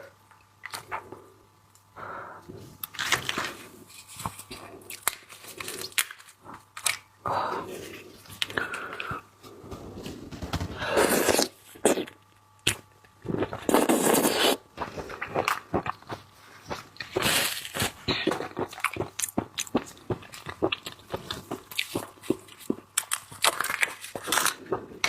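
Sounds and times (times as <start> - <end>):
wet chewing: 13.4 - 25.0.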